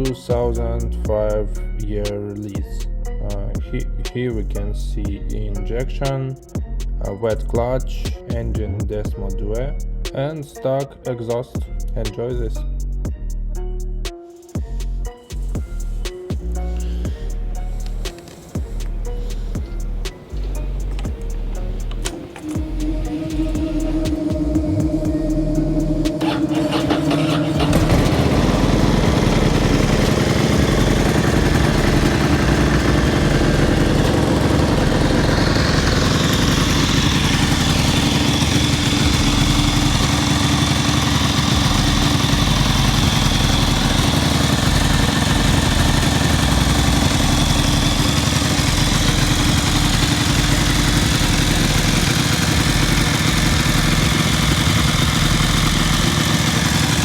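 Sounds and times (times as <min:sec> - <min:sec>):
motorcycle engine idling: 0:14.6 - 0:57.0
high whine: 0:16.8 - 0:57.0.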